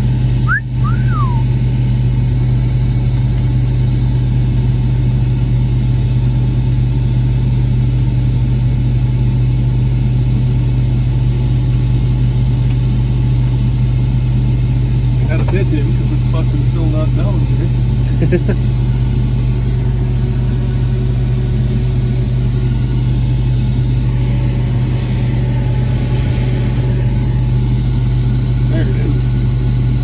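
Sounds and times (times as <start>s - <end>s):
combine harvester engine hum: 0.0s - 30.0s
short gliding tone: 0.5s - 1.4s.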